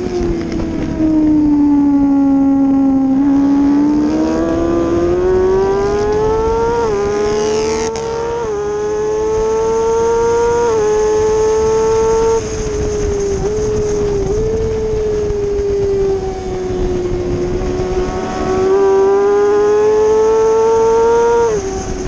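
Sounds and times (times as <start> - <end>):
motorcycle engine revving high: 0.0 - 22.0
wind rush: 0.0 - 22.0.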